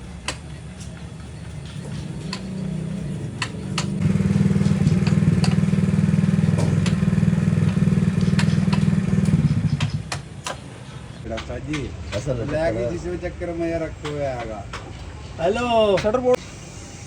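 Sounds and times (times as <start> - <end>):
small motor buzzing hum: 1.7 - 10.3
sharp clicks: 3.4 - 10.7.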